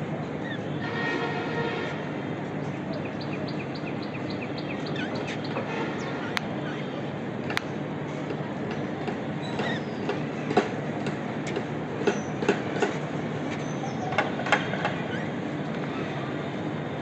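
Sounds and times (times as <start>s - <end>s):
budgies chirping: 3.2s - 6.8s.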